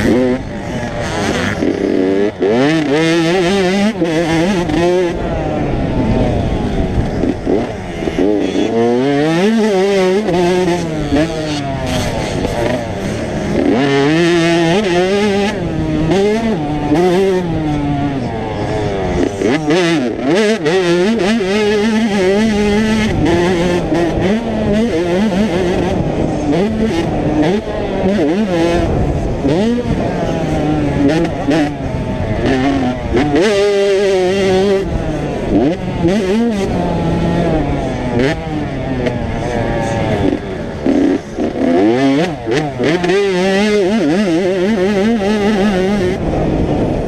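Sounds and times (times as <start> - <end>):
motocross bike engines revving: 0.0 - 47.0.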